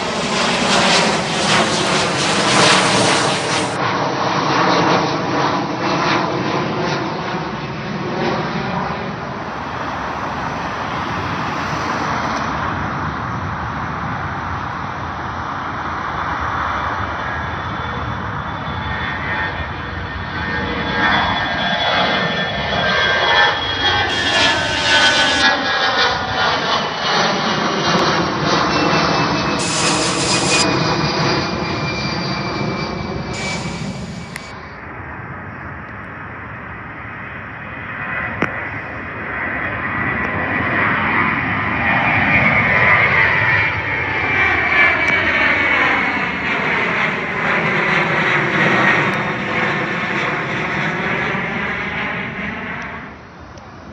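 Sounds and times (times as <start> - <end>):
high engine whine falling: 0.0 - 3.8, 6.6 - 14.8, 17.2 - 35.8
jet airliner passing overhead: 0.0 - 53.9.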